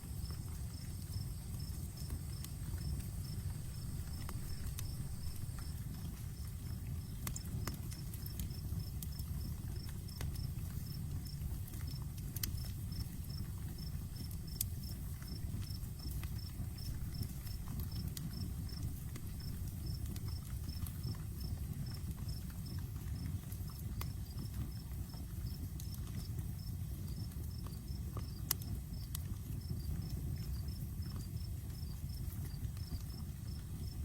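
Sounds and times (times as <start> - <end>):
cricket chirping: 0.0 - 23.3, 27.0 - 34.0
campfire crackling: 0.0 - 34.0.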